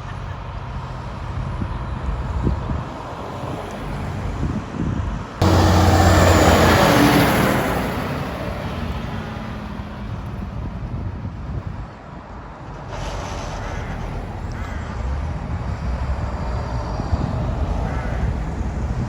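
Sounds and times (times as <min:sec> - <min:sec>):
road noise: 0:00.0 - 0:19.0
tractor engine passing: 0:05.4 - 0:10.8.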